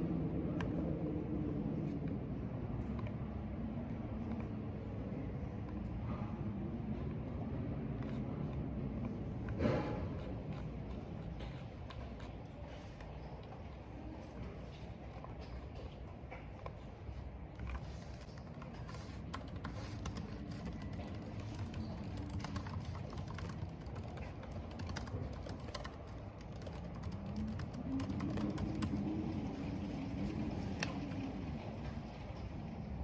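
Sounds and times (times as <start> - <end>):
keyboard typing: 16.6 - 31.2.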